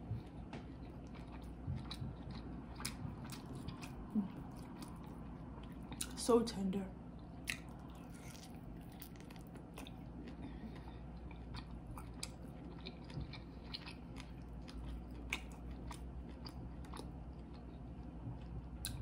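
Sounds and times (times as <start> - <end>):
soft wet chewing: 0.0 - 6.2, 7.1 - 19.0.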